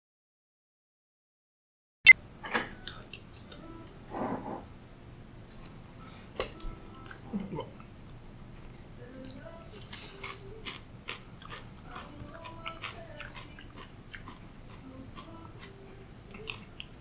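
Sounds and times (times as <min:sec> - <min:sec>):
man chewing food: 0:05.5 - 0:17.0.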